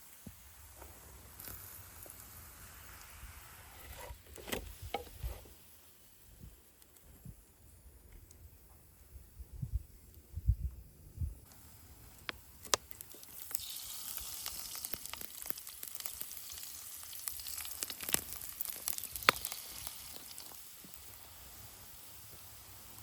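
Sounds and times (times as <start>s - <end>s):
food sizzling in hot oil: 0.0s - 6.2s, 11.4s - 23.0s
oil popping and crackling: 0.1s - 5.4s, 11.5s - 23.0s.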